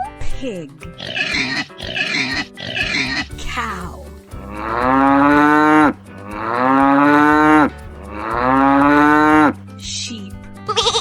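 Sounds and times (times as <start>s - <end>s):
cow mooing: 4.4s - 9.6s.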